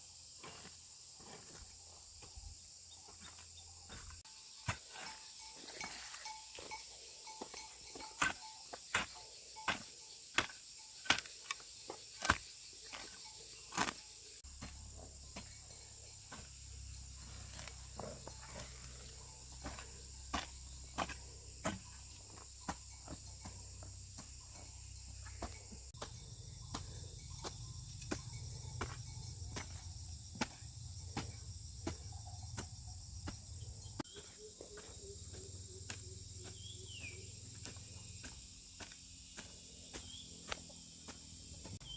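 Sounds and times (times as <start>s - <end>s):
insects chirring: 0.0s - 41.9s.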